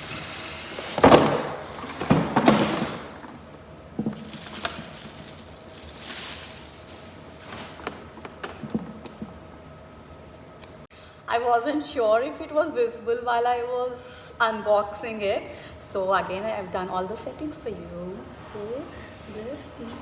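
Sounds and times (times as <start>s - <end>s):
packaging rustling: 0.0s - 9.4s
plastic parts knocking and clattering: 1.0s - 5.6s, 7.5s - 9.4s.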